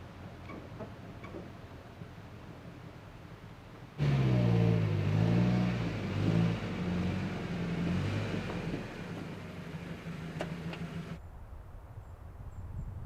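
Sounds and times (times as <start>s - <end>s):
pickup truck engine running: 1.7s - 11.2s.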